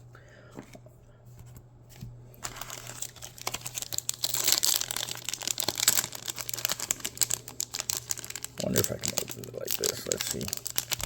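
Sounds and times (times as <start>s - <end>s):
foil wrapper crinkling: 2.4s - 11.0s.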